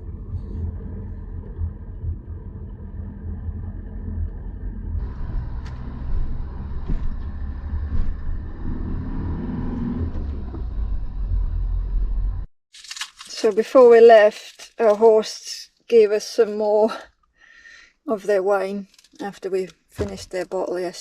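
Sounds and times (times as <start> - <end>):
campervan engine and tyres rumble: 0.0 - 12.5.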